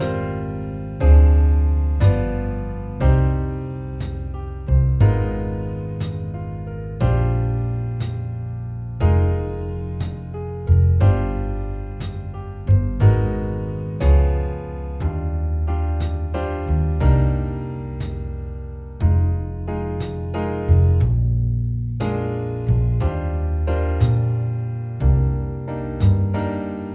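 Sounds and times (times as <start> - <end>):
piano chords ringing: 0.0 - 21.0
sustained low bass notes: 0.0 - 26.9.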